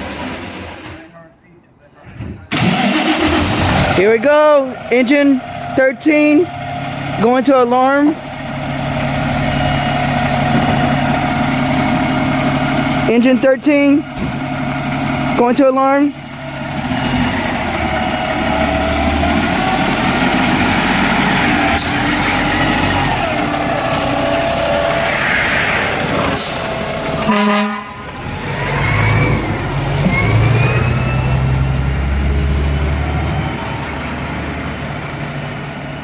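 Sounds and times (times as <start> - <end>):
fire engine running loudly: 2.6 - 36.0
rising siren wail: 16.3 - 34.8
fire engine horn blast: 27.2 - 28.1.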